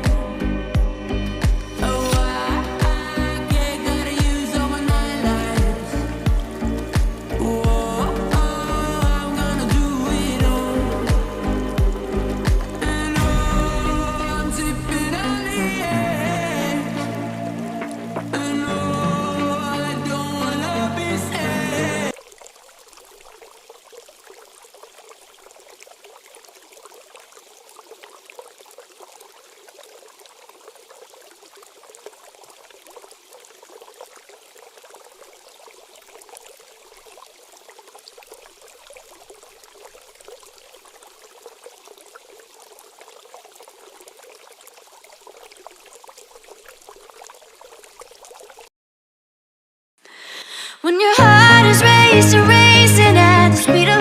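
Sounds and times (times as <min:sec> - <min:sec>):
water trickling and splashing: 0:00.0 - 0:20.9, 0:22.1 - 0:48.7.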